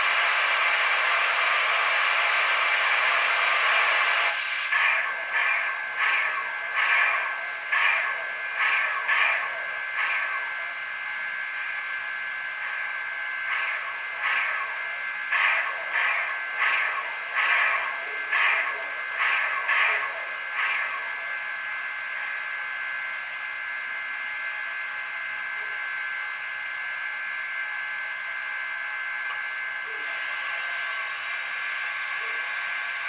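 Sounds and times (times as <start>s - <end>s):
steam hiss: 0.0s - 11.9s, 12.5s - 21.4s
steam locomotive chuffs: 0.0s - 26.2s, 28.4s - 33.0s
faint steady whine: 0.0s - 33.0s.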